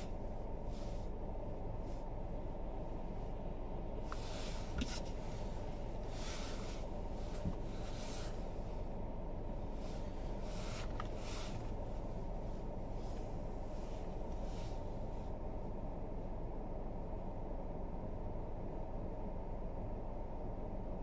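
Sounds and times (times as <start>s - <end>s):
car road rumble: 0.0s - 21.0s
tyres swishing through snow: 4.0s - 8.9s, 9.6s - 15.3s.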